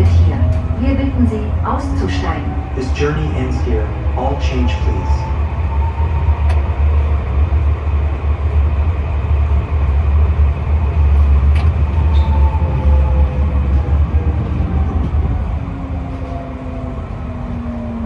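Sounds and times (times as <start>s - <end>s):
tram rumbling on rails: 0.0s - 18.0s
faint whining tone: 10.8s - 18.0s.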